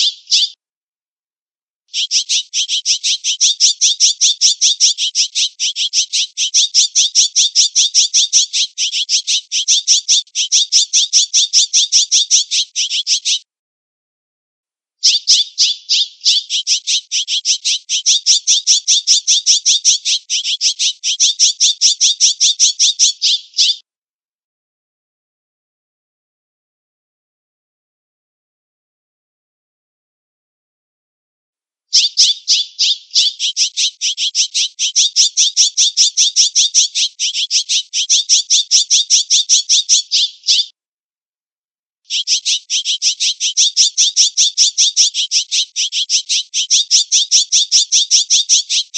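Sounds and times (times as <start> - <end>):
jay calling: 0.0 - 0.6
jay chattering calls: 0.0 - 0.6, 1.9 - 13.4, 15.0 - 23.8, 32.0 - 40.7, 42.1 - 48.9.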